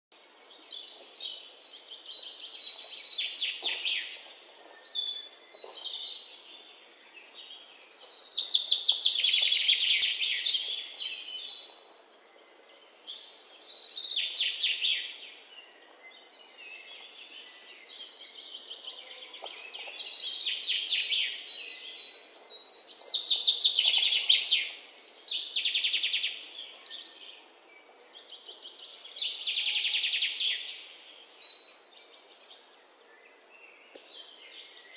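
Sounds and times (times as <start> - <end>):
faint background noise: 0.1 - 34.9
small birds singing: 0.2 - 34.9.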